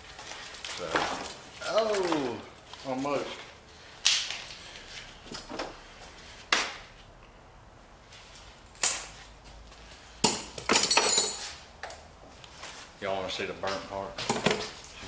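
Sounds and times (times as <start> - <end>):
metal tools clanking: 10.3 - 12.0.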